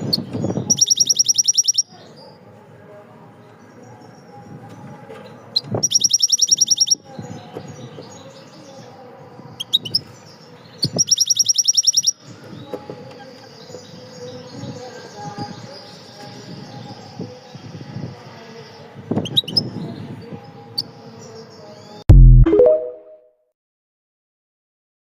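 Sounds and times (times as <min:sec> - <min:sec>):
faint background noise: 0:00.0 - 0:22.0
songbird trilling: 0:00.6 - 0:01.9, 0:05.6 - 0:07.0, 0:10.8 - 0:12.2.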